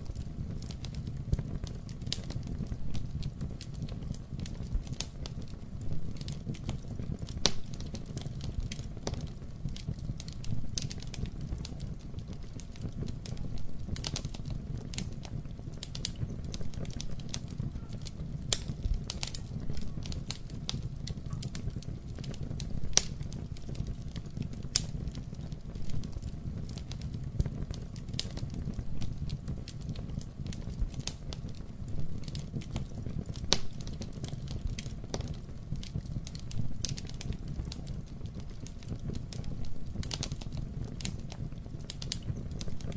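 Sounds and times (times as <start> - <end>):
burning wood crackling and popping: 0.0 - 42.9
low fire rumble: 0.0 - 42.9.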